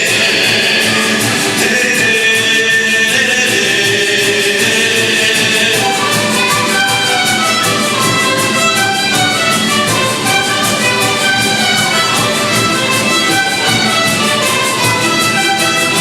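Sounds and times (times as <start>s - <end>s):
held sung notes: 0.0s - 8.9s
orchestra playing folk song: 0.0s - 16.0s.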